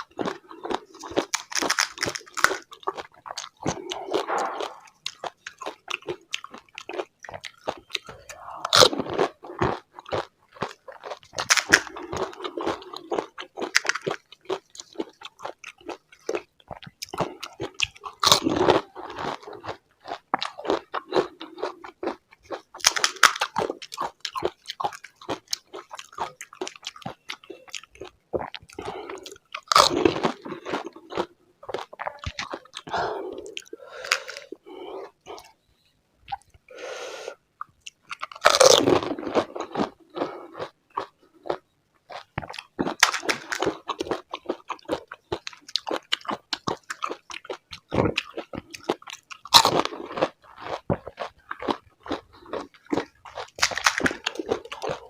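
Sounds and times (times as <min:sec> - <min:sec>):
crisp shells cracking when bitten: 0:01.0 - 0:05.6, 0:11.3 - 0:12.3, 0:13.7 - 0:14.2, 0:22.8 - 0:23.7, 0:42.6 - 0:44.0, 0:53.0 - 0:55.0
wet chewing: 0:37.6 - 0:55.0.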